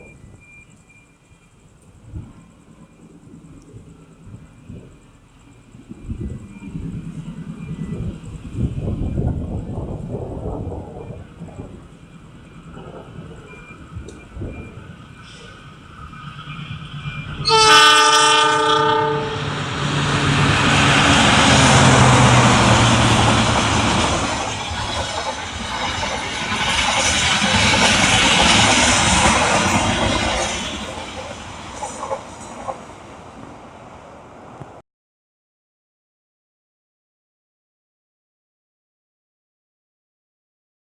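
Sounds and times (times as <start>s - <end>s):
train passing rail noise: 0.0s - 34.8s
train horn: 17.3s - 23.4s
sharp rail clacks: 20.7s - 33.1s.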